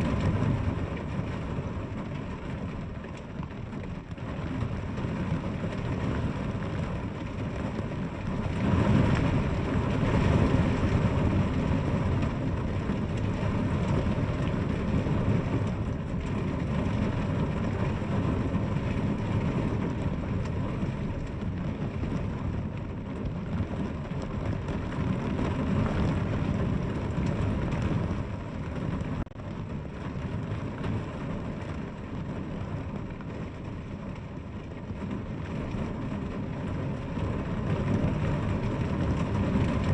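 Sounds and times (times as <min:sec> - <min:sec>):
heavy rainfall: 0:00.0 - 0:39.9.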